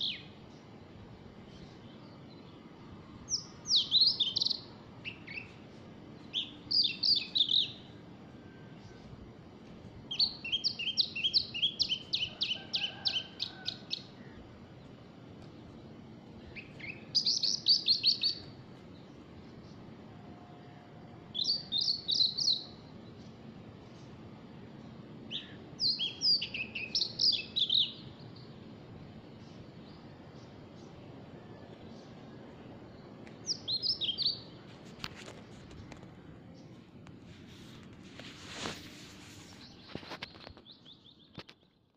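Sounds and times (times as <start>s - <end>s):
songbird high chirping: 0.0s - 0.7s, 1.4s - 9.1s, 10.1s - 15.8s, 16.4s - 19.9s, 21.3s - 24.1s, 24.8s - 36.8s, 39.3s - 41.9s.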